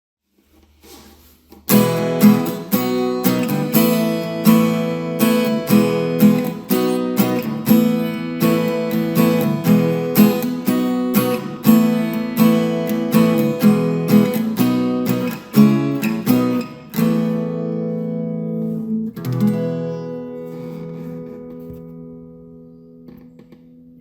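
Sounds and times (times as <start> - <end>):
strummed acoustic guitar: 0.8 - 23.5.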